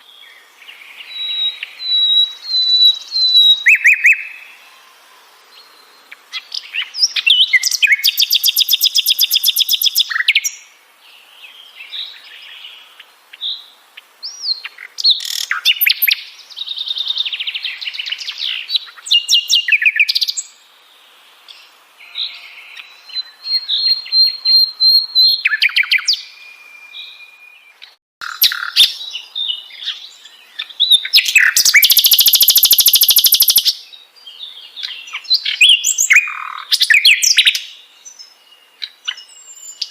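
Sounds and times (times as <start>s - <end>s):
flycatcher singing: 5.6s - 10.7s, 22.2s - 39.9s.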